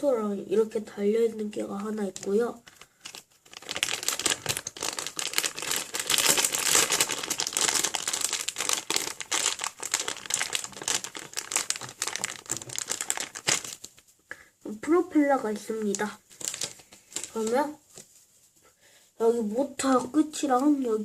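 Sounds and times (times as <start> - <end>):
packaging crinkling: 1.8 - 14.1, 15.6 - 18.2.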